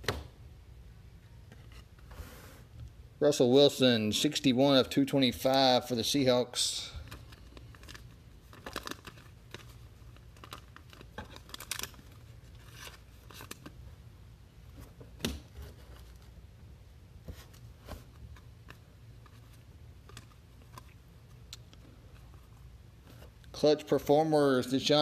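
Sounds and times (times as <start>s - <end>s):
low steady hum: 0.0s - 25.0s
trading cards rustling: 7.0s - 13.8s.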